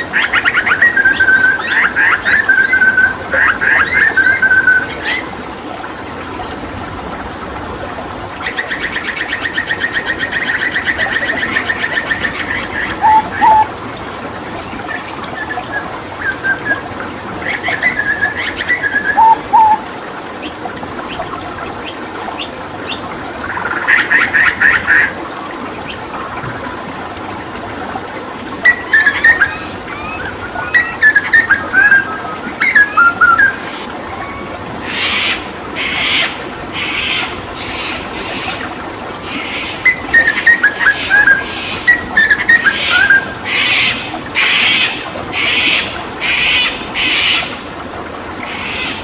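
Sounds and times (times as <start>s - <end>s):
running water: 0.0s - 49.0s
butcherbird calling: 8.5s - 13.7s, 17.4s - 19.8s, 28.6s - 38.0s.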